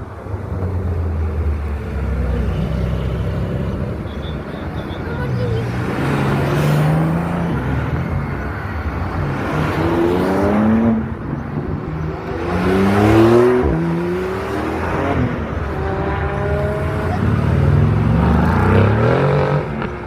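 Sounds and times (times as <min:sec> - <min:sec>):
car engines revving: 0:00.0 - 0:20.0.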